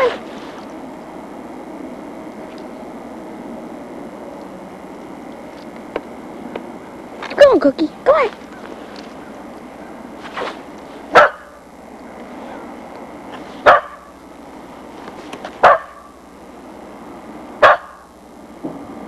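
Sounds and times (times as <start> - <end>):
dog barking: 11.1 - 11.6, 13.6 - 14.1, 15.6 - 16.1, 17.6 - 18.1.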